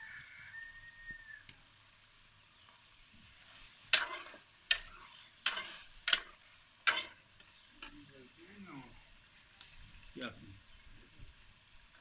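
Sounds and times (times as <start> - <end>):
chicken sizzling in a pan: 0.0 - 12.0
scraping strokes in a pan: 3.2 - 8.1.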